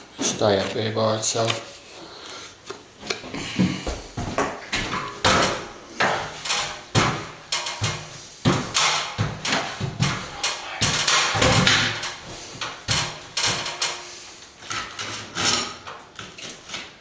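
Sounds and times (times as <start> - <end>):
cement scraping and tapping strokes: 3.8 - 15.6.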